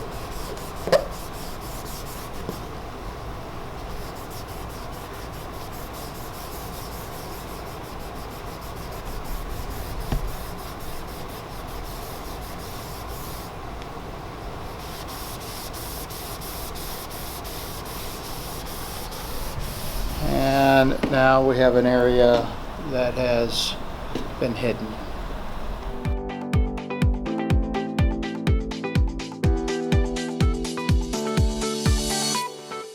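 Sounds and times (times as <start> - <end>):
cloth rubbing wood floor: 0.0 - 2.7, 3.9 - 13.5, 14.8 - 21.3.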